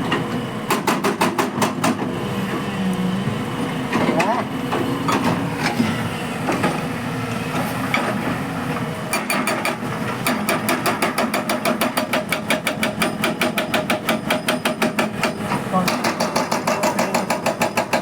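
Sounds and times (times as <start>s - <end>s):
hydraulic breaker hammering stone: 0.7s - 2.1s, 9.1s - 18.0s.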